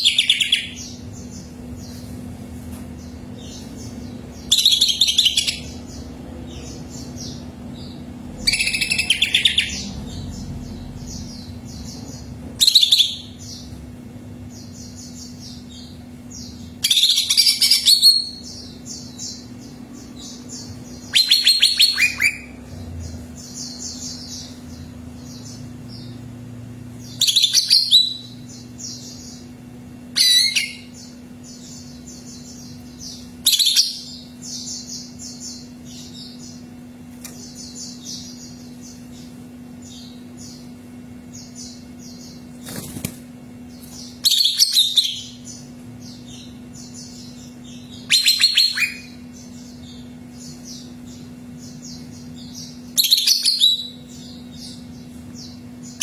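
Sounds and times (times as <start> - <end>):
bird whistled song: 0.0 - 1.0, 4.5 - 5.8, 8.4 - 9.9, 12.6 - 13.4, 16.8 - 19.1, 20.2 - 22.6, 27.2 - 29.4, 30.1 - 36.4, 44.2 - 56.0
faint steady hum: 0.0 - 56.0
bird rapid twittering: 8.4 - 13.6, 20.2 - 22.8, 41.4 - 56.0.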